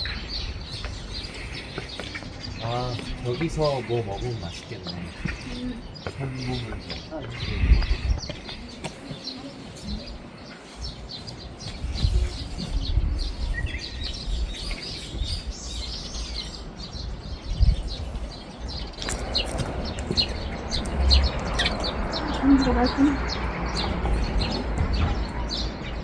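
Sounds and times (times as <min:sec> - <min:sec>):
small birds chirping: 0:00.0 - 0:26.0
low rumbling: 0:11.6 - 0:26.0.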